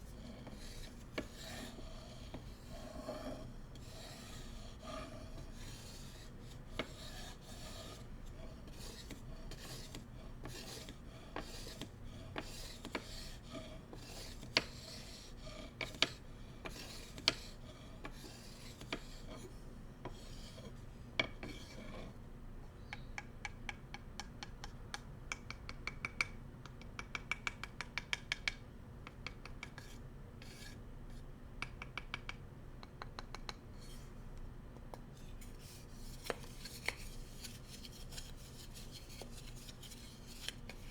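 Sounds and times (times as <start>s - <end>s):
bamboo utensils rubbed and scratched: 35.2s - 40.9s.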